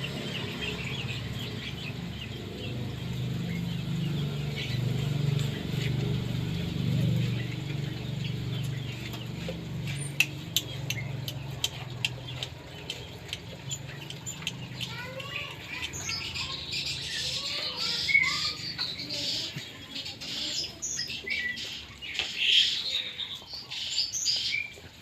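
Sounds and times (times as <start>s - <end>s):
birds chirping and whistling: 0.0s - 25.0s
sharp ticks and taps: 8.6s - 16.7s.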